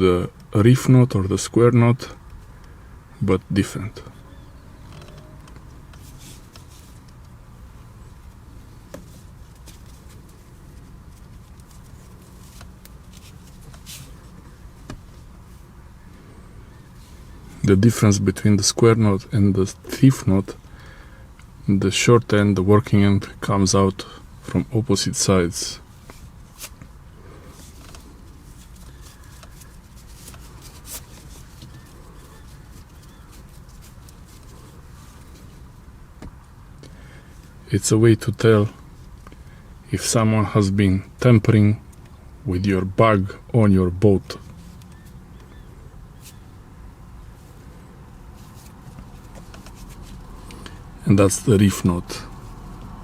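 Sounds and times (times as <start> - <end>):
low steady hum: 0.0 - 53.0
rope rustling and clicking: 4.8 - 7.4, 8.2 - 15.5, 26.0 - 37.0, 44.4 - 45.6, 48.4 - 50.9.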